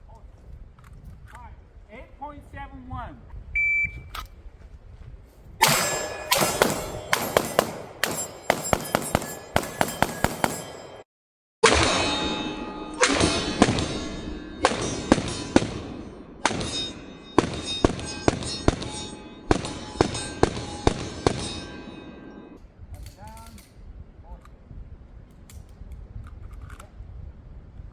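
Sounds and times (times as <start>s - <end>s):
pistol shots: 5.6s - 11.0s
metallic ringing: 5.6s - 22.6s.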